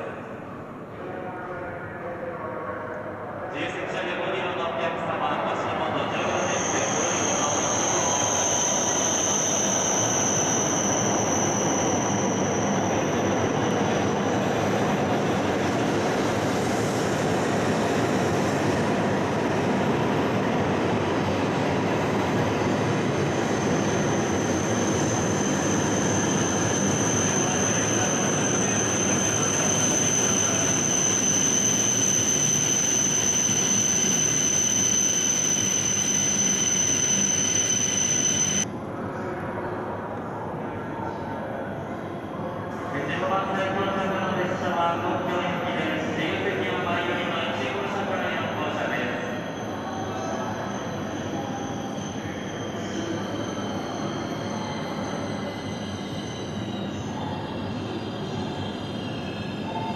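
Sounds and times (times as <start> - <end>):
high steady train whine: 0.0 - 59.9.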